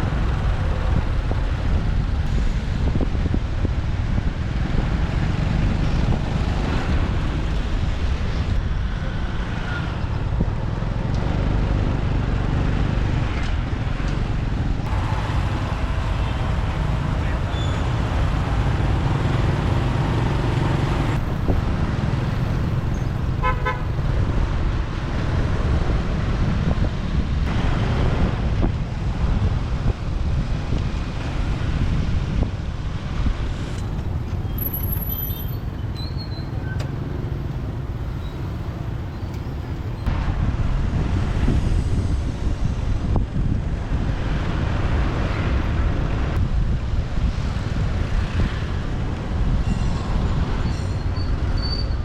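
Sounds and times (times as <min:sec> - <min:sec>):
motorbike rumbling: 0:09.8 - 0:29.8
wind on microphone: 0:12.6 - 0:34.9, 0:39.8 - 0:52.0
vehicle horn toot: 0:14.9 - 0:19.7, 0:23.4 - 0:23.9.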